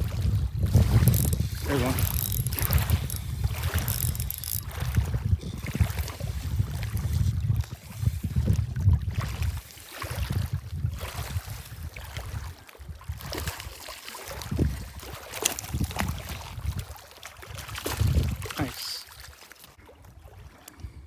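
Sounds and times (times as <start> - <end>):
wind buffeting microphone: 0.0 - 13.7, 14.3 - 18.6.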